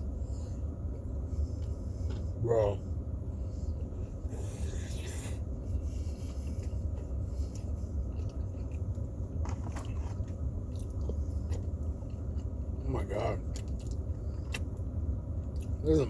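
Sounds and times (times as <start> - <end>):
steady low rumble: 0.0 - 16.0
chewing and biting food: 6.1 - 12.8, 13.4 - 15.8.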